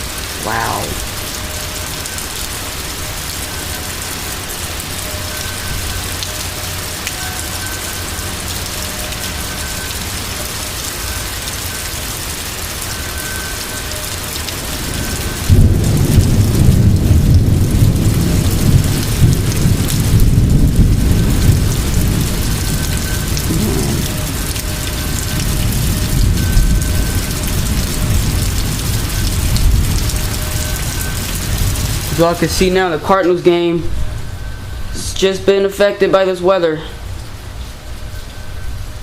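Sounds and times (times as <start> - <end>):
heavy rain: 0.0 - 35.1
deep rumble of thunder: 14.8 - 30.8.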